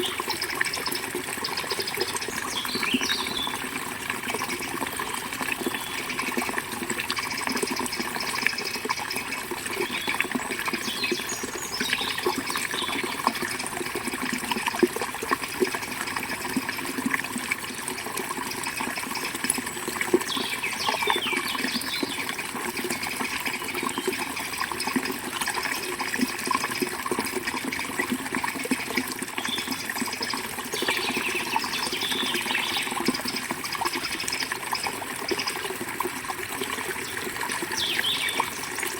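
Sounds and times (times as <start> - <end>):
bird chirps: 37.8 - 38.5.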